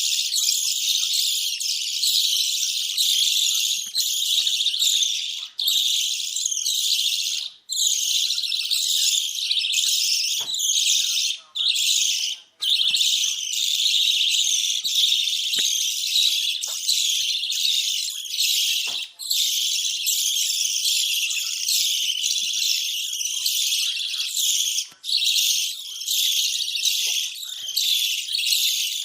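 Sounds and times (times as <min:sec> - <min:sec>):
budgerigars chattering: 0:00.0 - 0:29.0.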